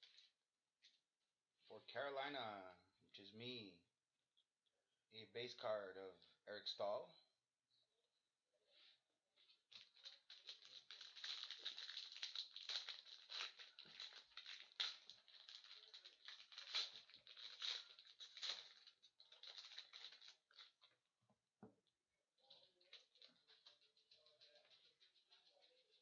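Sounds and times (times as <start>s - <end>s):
cards and packaging rustling: 9.4s - 21.0s.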